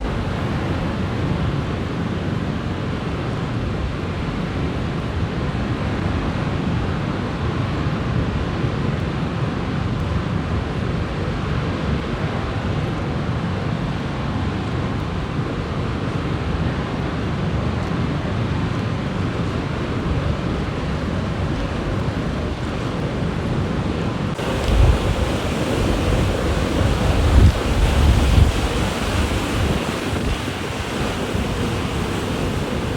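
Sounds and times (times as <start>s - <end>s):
wind buffeting microphone: 10.6s - 32.9s
strong wind rushing: 21.7s - 32.9s.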